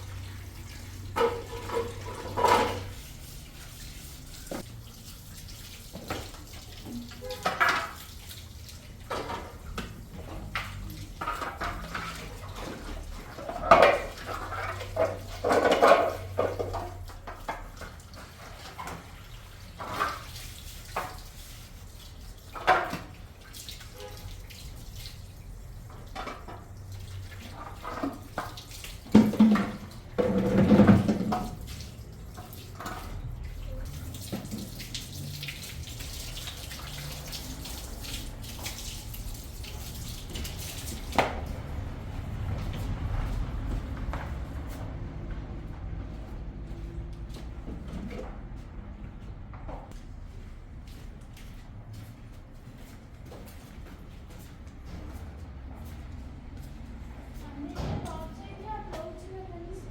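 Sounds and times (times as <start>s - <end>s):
water splashing in a sink: 0.0s - 49.3s
dishes and pots clattering: 1.1s - 3.1s, 9.1s - 17.8s, 27.5s - 31.6s.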